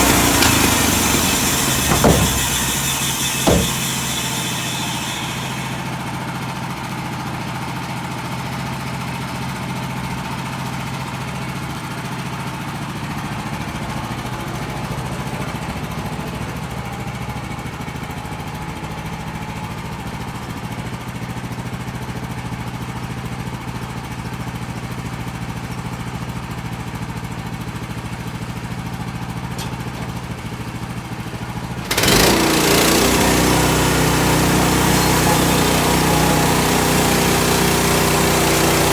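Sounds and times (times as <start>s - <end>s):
small gasoline engine running: 31.8s - 38.9s.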